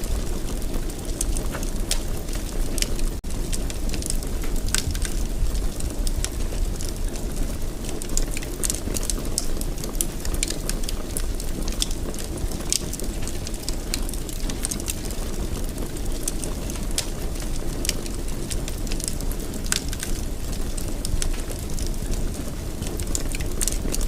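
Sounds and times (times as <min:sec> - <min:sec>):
fireplace fire crackling: 0:00.0 - 0:24.0.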